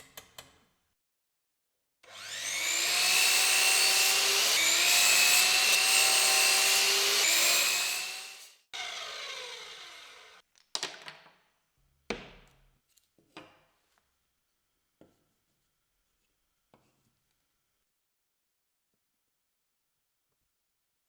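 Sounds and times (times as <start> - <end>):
power tool motor spinning down: 2.1 - 10.4.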